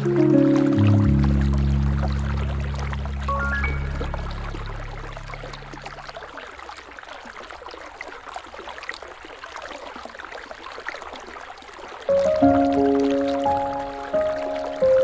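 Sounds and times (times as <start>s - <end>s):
music: 0.0s - 5.4s, 12.1s - 15.0s
river water flowing: 0.0s - 15.0s
water splashes and drips: 0.0s - 15.0s.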